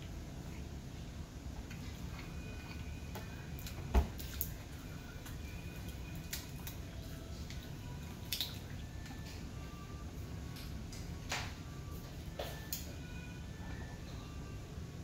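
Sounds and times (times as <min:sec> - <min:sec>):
chewing with wet mouth clicks: 0:01.6 - 0:09.4.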